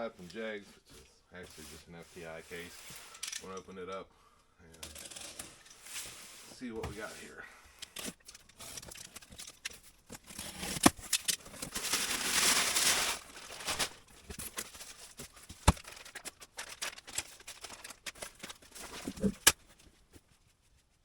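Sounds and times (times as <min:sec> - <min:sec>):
packaging rustling: 0:07.8 - 0:19.9.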